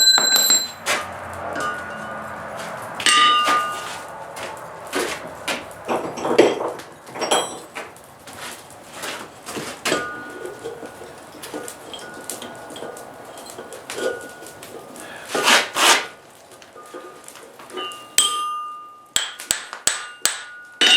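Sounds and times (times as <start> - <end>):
anvil ringing: 0.0 - 1.0, 1.6 - 2.2, 3.0 - 4.0, 9.9 - 14.6, 17.8 - 20.9.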